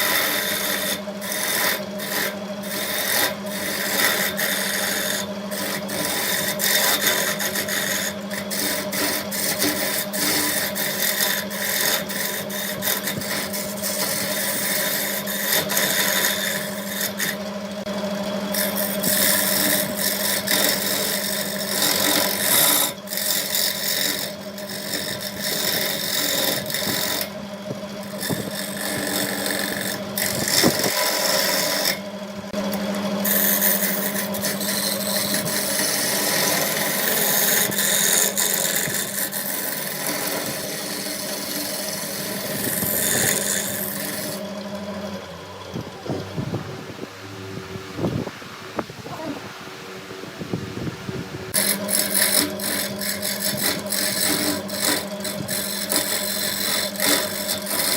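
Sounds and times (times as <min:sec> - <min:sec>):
tool scraping spinning wood: 0:00.0 - 0:49.3, 0:50.0 - 0:57.9
wood lathe motor hum: 0:00.0 - 0:57.9.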